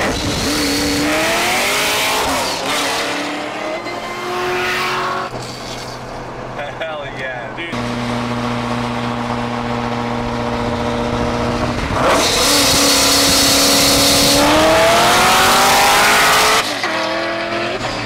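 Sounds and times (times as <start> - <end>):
wind noise: 0.0 - 2.8, 8.9 - 16.6
car engine revving at full throttle: 0.0 - 5.4, 7.7 - 18.0.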